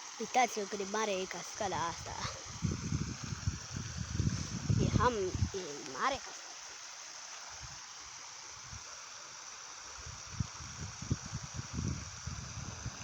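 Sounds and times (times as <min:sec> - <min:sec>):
waterfall rushing: 0:04.3 - 0:07.2.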